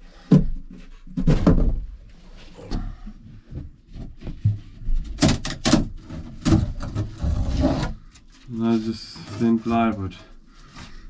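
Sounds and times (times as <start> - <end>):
boards scraping: 5.9 - 11.0.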